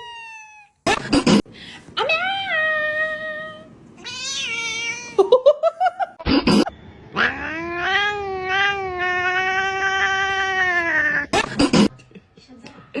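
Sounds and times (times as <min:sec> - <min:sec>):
cat meowing: 0:02.6 - 0:05.2, 0:07.2 - 0:11.3
cat yowling: 0:02.6 - 0:05.2, 0:07.2 - 0:11.3.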